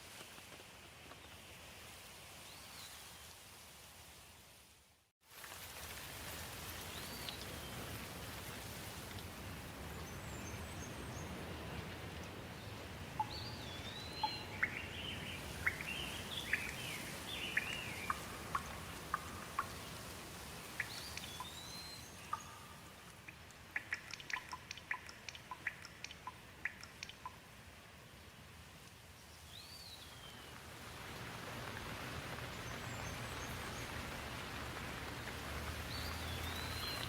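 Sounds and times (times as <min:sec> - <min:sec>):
light rain falling: 0:00.0 - 0:37.0
short sharp clicks or drips: 0:22.3 - 0:27.4.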